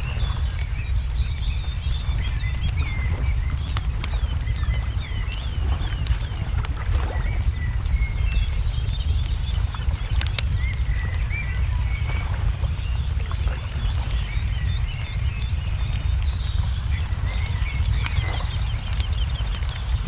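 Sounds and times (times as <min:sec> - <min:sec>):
low rumble of fire: 0:00.0 - 0:20.0
songbirds chirping: 0:00.0 - 0:20.0
wood fire crackling and popping: 0:00.0 - 0:20.0.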